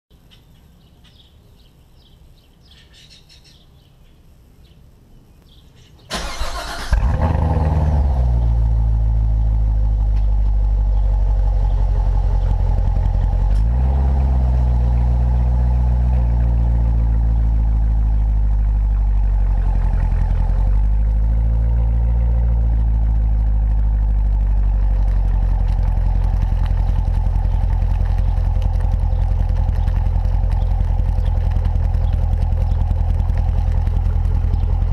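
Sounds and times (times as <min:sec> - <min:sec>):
faint bird chirps: 0:00.2 - 0:06.1
car engine starting and idling: 0:06.1 - 0:34.9.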